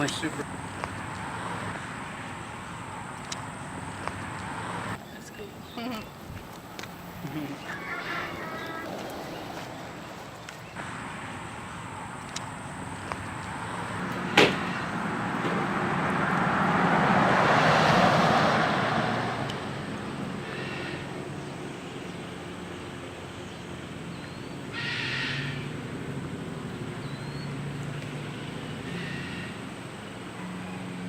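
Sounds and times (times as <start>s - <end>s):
vehicle passing: 0.0s - 31.0s
bird chirps and calls: 5.0s - 10.8s.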